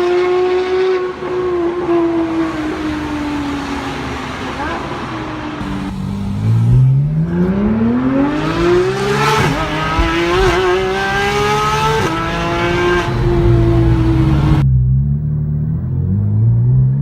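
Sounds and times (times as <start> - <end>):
sports car engine revving loud: 5.6 - 14.6.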